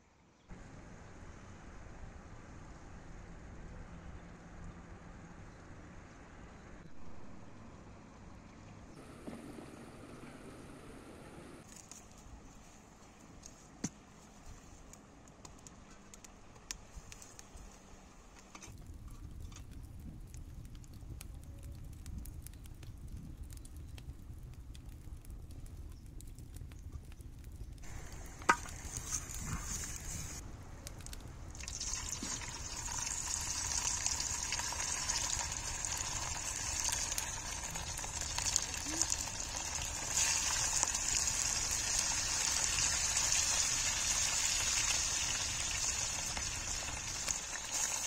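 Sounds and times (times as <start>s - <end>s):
food sizzling in a hot pan: 31.6s - 48.0s.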